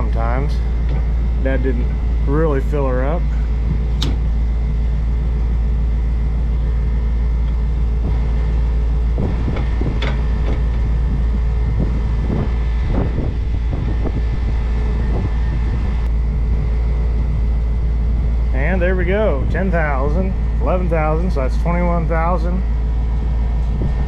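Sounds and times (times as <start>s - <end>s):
truck engine idling: 0.0s - 24.0s.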